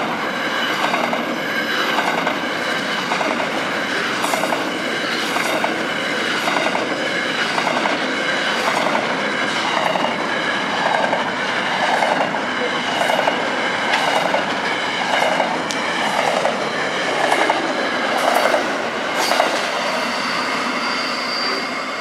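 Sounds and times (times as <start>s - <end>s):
train wheels clattering over rail joints: 0.7s - 19.9s
steady high-pitched ring: 19.2s - 22.0s.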